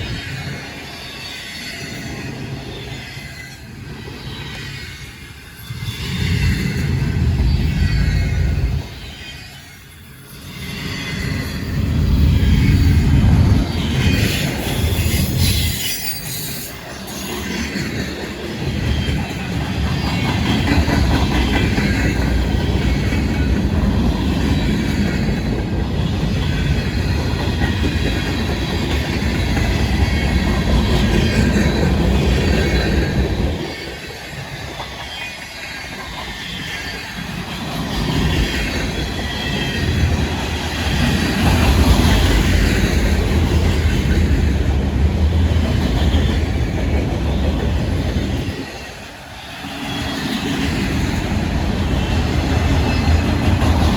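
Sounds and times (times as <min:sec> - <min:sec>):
train wheels rumbling on rails: 0:00.0 - 0:53.9
high wheel squeal: 0:13.6 - 0:17.8.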